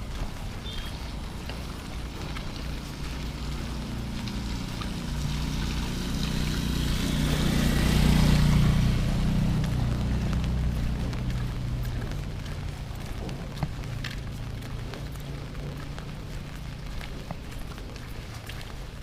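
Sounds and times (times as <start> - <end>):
rain hiss: 0.1 - 13.0
vehicle engine passing by: 0.9 - 19.0.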